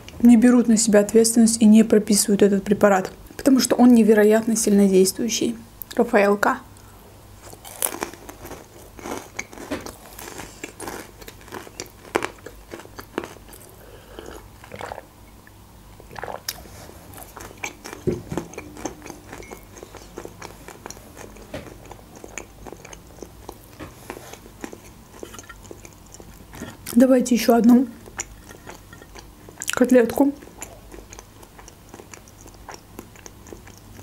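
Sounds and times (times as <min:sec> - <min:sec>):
chewing crunchy candy: 0:07.4 - 0:15.0, 0:16.1 - 0:27.0, 0:27.8 - 0:34.0.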